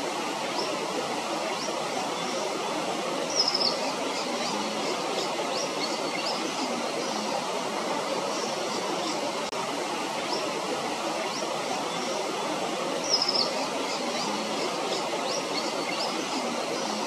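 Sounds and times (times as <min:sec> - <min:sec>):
small birds chirping: 0:03.3 - 0:06.8, 0:13.0 - 0:17.0.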